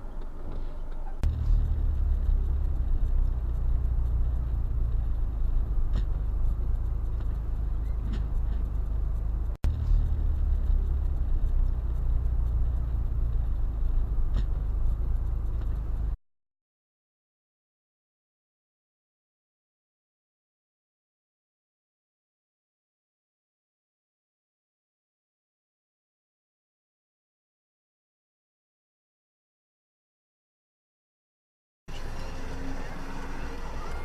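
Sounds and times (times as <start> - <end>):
car engine and road noise: 0.0 - 16.2, 31.9 - 34.0.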